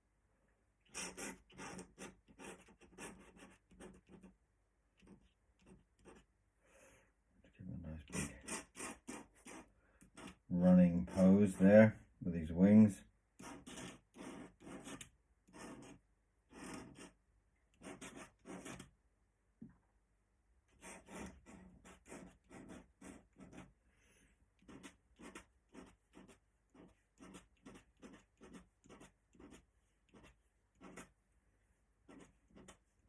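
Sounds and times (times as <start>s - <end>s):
pen scratching on paper: 0.9s - 4.4s, 5.0s - 6.3s, 8.0s - 11.7s, 13.4s - 17.2s, 17.8s - 18.9s, 20.7s - 23.8s, 24.6s - 31.2s, 32.0s - 33.0s.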